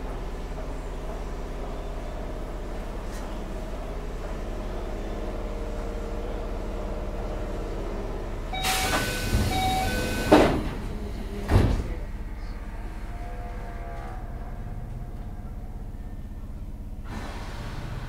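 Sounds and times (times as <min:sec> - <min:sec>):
train humming: 0:00.0 - 0:18.0
door chime beeps: 0:08.6 - 0:10.4
sliding doors banging shut: 0:08.6 - 0:12.0.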